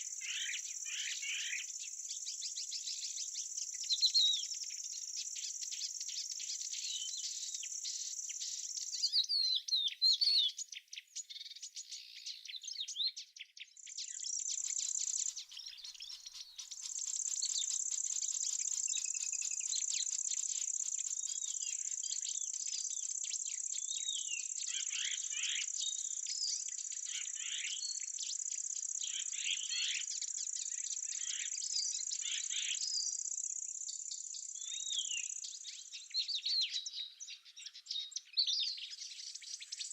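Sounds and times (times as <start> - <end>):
insects trilling: 0.0 - 6.6, 14.2 - 26.2
small birds chirping: 0.0 - 39.9.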